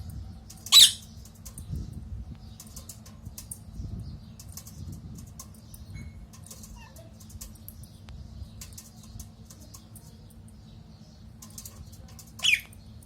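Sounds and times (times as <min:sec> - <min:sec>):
parrot squawk: 0:00.7 - 0:01.0.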